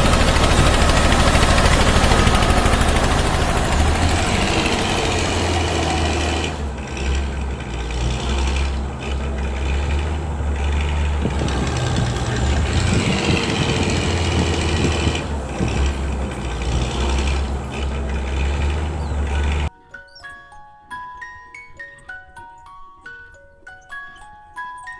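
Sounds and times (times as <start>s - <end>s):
heavy engine low hum: 0.0s - 19.7s.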